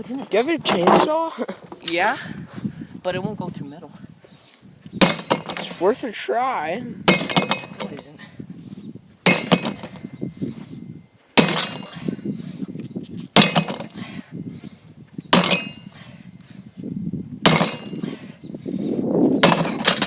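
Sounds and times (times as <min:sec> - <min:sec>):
pickaxe clanking on metal: 0:05.0 - 0:05.9, 0:07.1 - 0:08.1, 0:09.2 - 0:10.1, 0:11.4 - 0:12.1, 0:13.4 - 0:14.0, 0:15.3 - 0:15.9, 0:17.4 - 0:18.1, 0:19.4 - 0:20.0.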